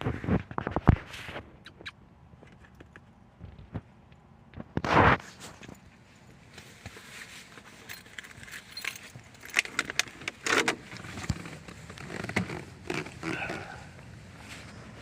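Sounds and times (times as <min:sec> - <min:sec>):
keys jangling: 0:07.8 - 0:10.1.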